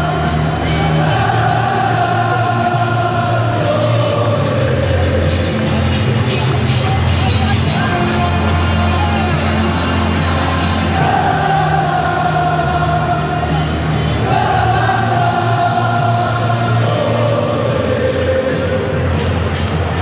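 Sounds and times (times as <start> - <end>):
crowd chanting: 0.0 - 20.0.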